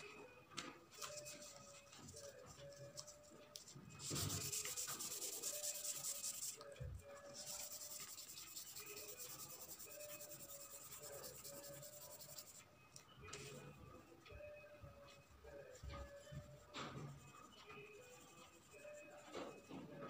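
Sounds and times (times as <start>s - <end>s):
pencil scratching on paper: 4.0s - 6.6s, 7.2s - 12.6s.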